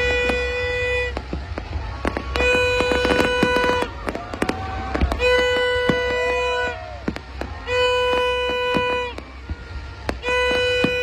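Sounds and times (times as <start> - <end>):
blaring horn: 0.0 - 11.0
fireworks bangs and crackles: 0.0 - 11.0.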